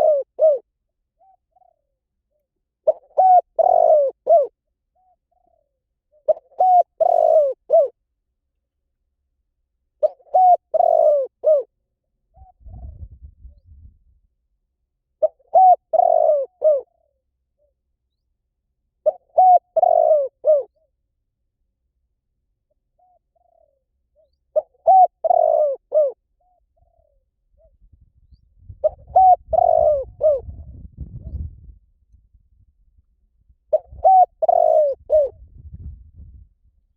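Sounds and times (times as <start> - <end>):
dove cooing: 0.0 - 8.0, 10.0 - 11.7, 12.3 - 13.2, 15.2 - 17.8, 19.0 - 20.9, 23.0 - 27.8, 28.8 - 31.6, 33.7 - 35.4
faint low rumble: 12.3 - 14.9, 26.6 - 34.1, 35.0 - 36.9.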